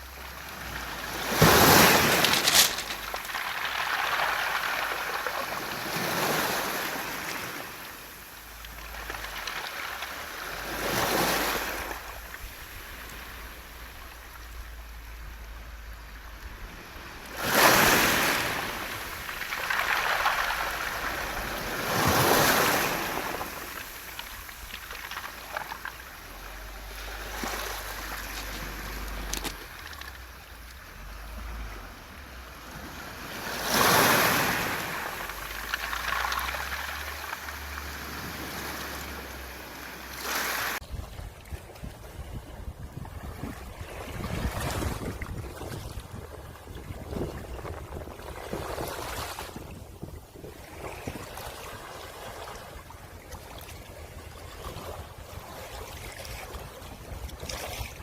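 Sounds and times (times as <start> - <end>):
waves surging onto beach: 0.0 - 42.0, 42.7 - 58.0
pebbles rattling: 1.6 - 5.4, 23.2 - 30.8, 35.0 - 37.9.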